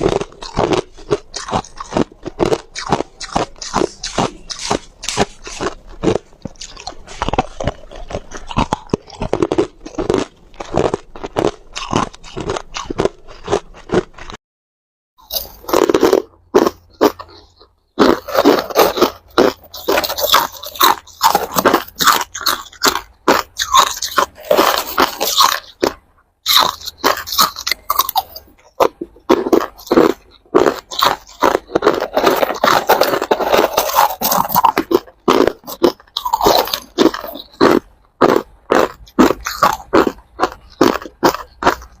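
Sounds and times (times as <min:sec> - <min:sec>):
ice crunching between teeth: 0:00.0 - 0:14.4, 0:15.2 - 0:42.0.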